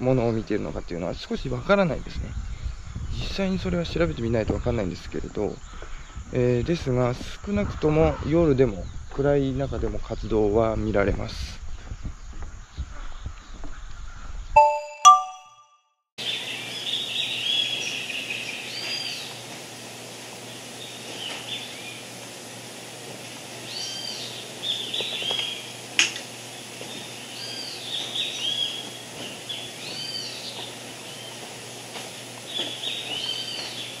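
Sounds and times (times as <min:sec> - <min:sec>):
outdoor hiss: 0:00.0 - 0:09.6, 0:16.2 - 0:34.0
birds calling high-pitched: 0:16.2 - 0:19.4, 0:23.6 - 0:25.8, 0:26.4 - 0:31.8, 0:32.4 - 0:34.0.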